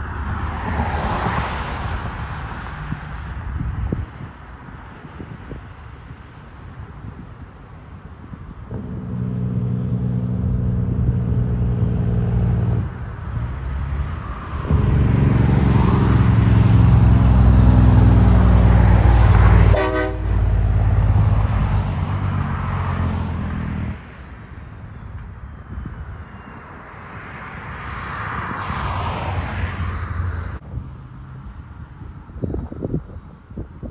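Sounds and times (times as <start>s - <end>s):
truck engine and road noise: 0.0s - 33.9s
truck air horn blast: 8.7s - 11.4s, 14.7s - 18.3s, 19.2s - 21.2s.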